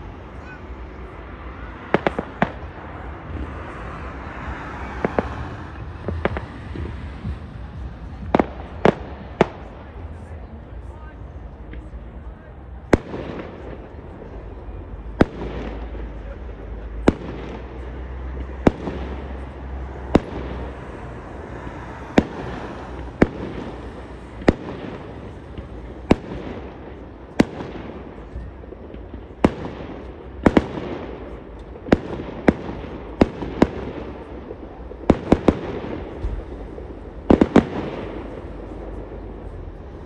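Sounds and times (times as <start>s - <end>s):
continuous firework crackling: 0.0s - 40.0s.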